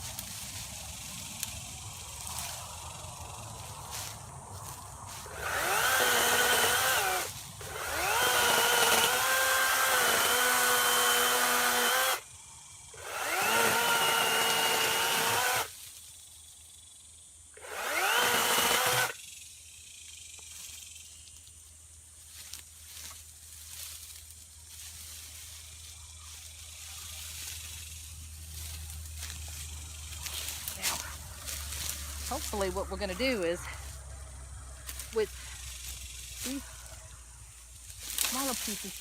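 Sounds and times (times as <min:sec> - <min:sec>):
electric chainsaw cutting wood: 0:05.2 - 0:12.3, 0:13.0 - 0:15.8, 0:17.6 - 0:19.2.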